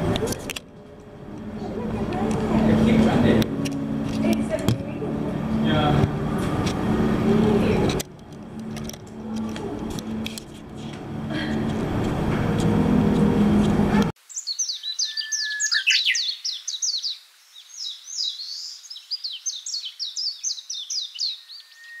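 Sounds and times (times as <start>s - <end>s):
background hum: 0.0s - 14.1s
crowd noise: 0.0s - 14.1s
songbird chirping: 14.2s - 22.0s.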